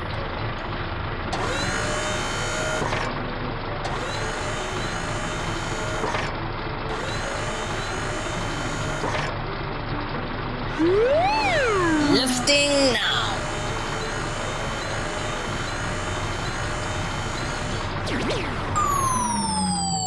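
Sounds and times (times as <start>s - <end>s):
motor whirring: 1.4s - 3.1s, 3.9s - 6.3s, 6.9s - 9.4s, 10.7s - 20.0s.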